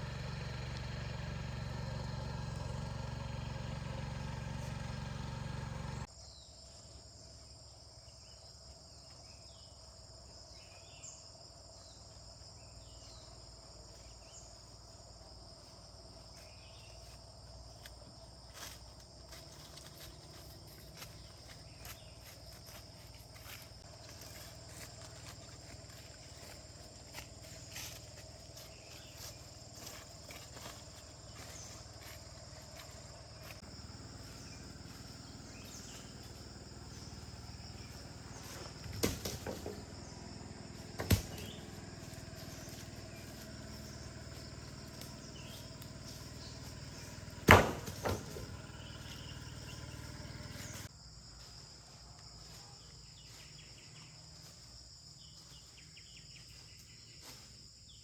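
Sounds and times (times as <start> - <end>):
insects chirring: 0.0 - 58.0
sharp knocks: 47.4 - 48.5.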